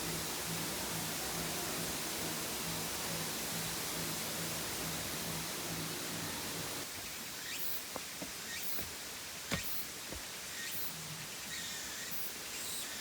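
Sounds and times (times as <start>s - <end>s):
waterfall rushing: 0.0s - 6.9s.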